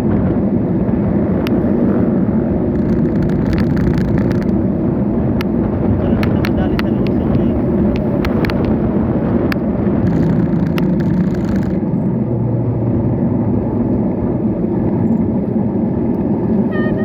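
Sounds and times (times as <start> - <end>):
road traffic noise: 0.0 - 17.0
rumbling wind: 0.0 - 17.0
sharp clicks: 2.7 - 4.6, 9.5 - 11.8.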